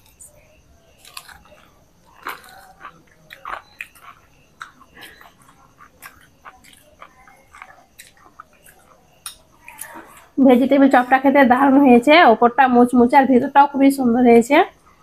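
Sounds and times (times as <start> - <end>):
people chewing crunchy food: 0.0 - 11.2.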